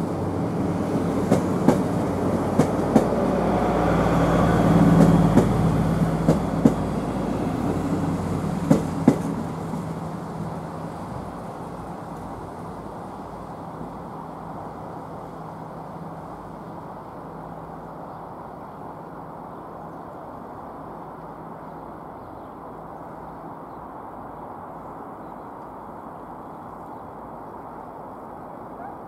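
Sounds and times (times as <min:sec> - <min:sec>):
train approaching rumble: 0:00.0 - 0:29.0.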